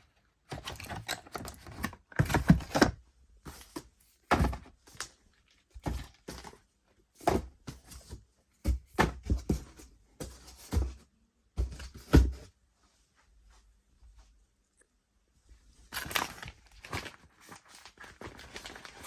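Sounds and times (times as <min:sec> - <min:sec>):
knocks and thuds of handled items: 0:00.5 - 0:05.1, 0:05.8 - 0:12.6.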